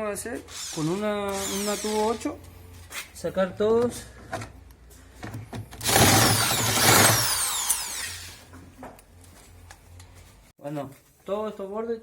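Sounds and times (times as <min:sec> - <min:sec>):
power drill whine: 0:00.5 - 0:02.1, 0:05.8 - 0:08.4.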